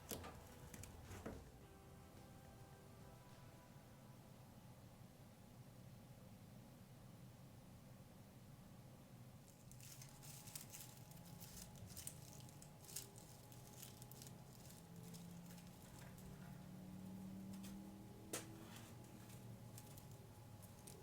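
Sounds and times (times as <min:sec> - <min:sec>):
dried flowers crackling and rustling: 0:09.4 - 0:21.0.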